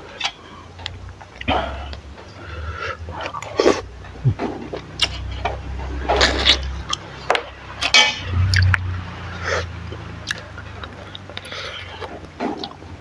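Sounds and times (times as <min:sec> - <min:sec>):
utensils clinking against dishes: 0:04.4 - 0:08.8.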